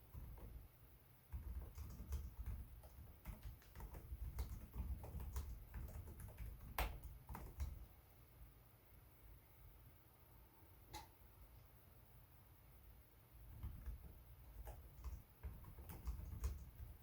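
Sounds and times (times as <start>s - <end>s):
laptop keyboard typing: 0.0s - 0.7s, 1.3s - 7.9s, 13.5s - 17.0s.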